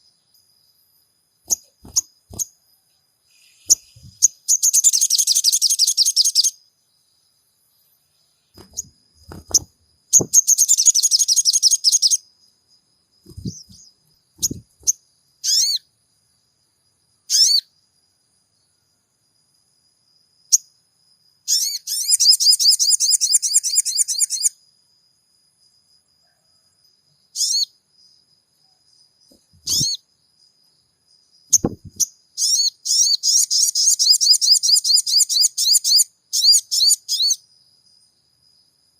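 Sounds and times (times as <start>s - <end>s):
bird chattering trills: 13.3s - 15.8s, 29.6s - 30.0s.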